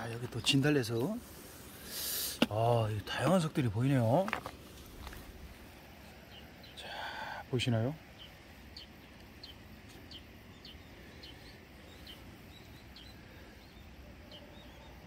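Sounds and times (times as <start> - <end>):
faint bird chirping: 4.9 - 15.0.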